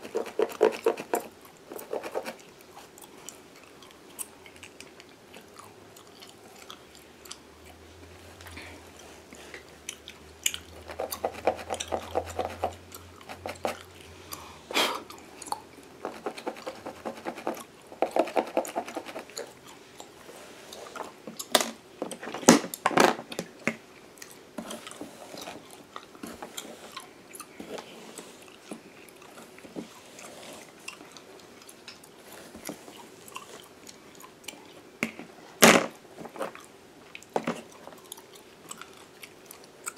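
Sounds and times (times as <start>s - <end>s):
comb scratching through hair: 0.0s - 2.4s, 16.0s - 19.4s
gum chewing with wet smacks: 0.0s - 7.8s, 8.4s - 16.8s, 17.6s - 21.5s, 24.0s - 27.6s, 28.2s - 34.9s, 36.5s - 39.9s.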